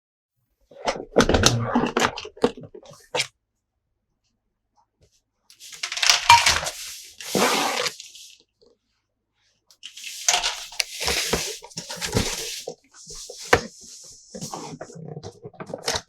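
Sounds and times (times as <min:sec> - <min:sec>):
toy packaging rustling: 0:05.5 - 0:08.4, 0:09.8 - 0:15.1.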